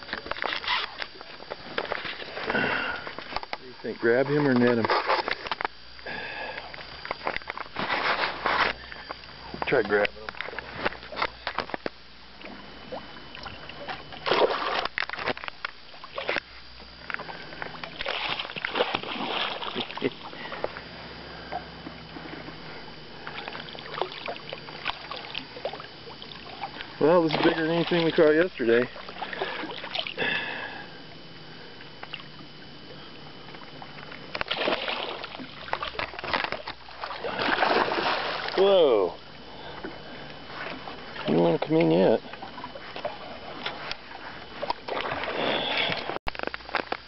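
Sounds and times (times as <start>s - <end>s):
knocks and clicks against boat: 0.0s - 3.6s, 4.4s - 5.8s, 6.5s - 20.9s, 35.2s - 37.2s, 40.6s - 47.0s
fish thrashing and splashing: 13.3s - 22.5s, 23.2s - 30.6s, 34.3s - 38.7s.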